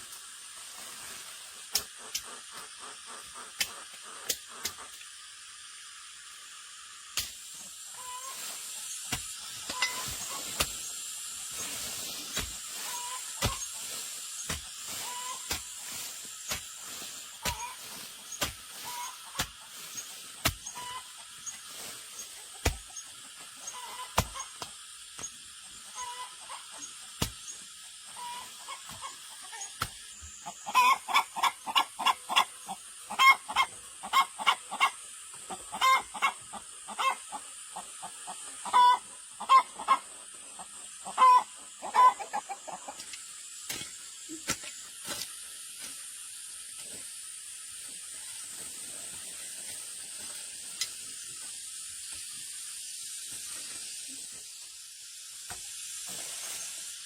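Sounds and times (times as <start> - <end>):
steady hiss: 0.0 - 57.0
chickens clucking: 0.8 - 5.7, 7.6 - 43.3.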